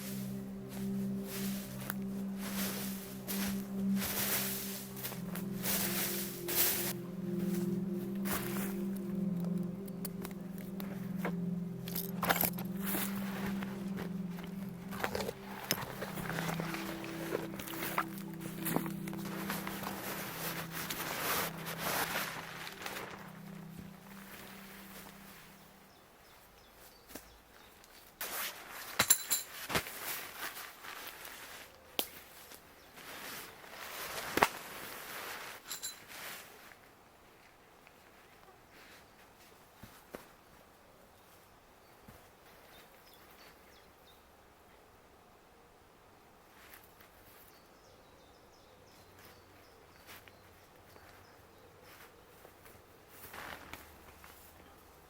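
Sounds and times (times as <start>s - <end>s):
footsteps rustling through vegetation: 0.0s - 25.8s, 26.7s - 36.9s, 49.0s - 55.0s
faint woodland ambience: 0.0s - 55.0s.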